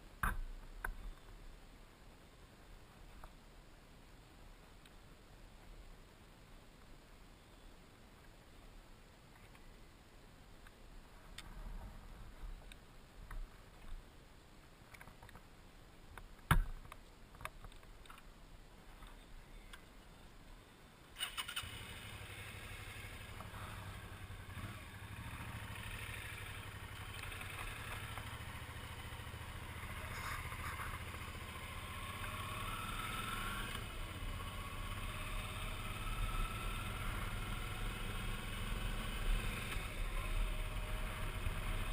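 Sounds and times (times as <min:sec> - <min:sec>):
motorcycle engine running: 0:21.6 - 0:41.9.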